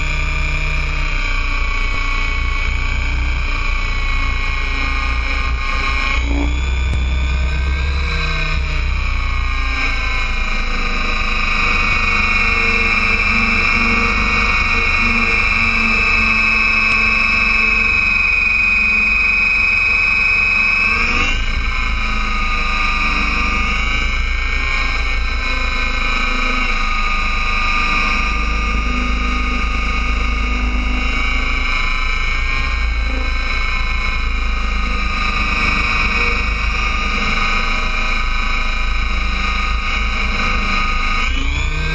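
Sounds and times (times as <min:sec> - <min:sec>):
model helicopter motor whine: 0:00.0 - 0:41.9.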